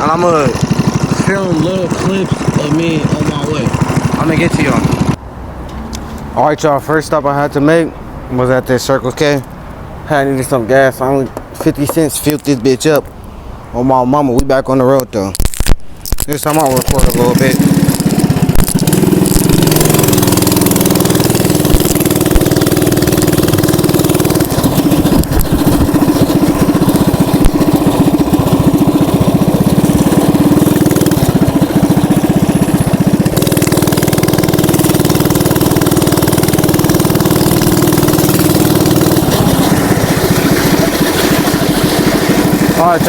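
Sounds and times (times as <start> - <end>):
mini bike engine running: 0.0 - 5.2, 15.5 - 43.0.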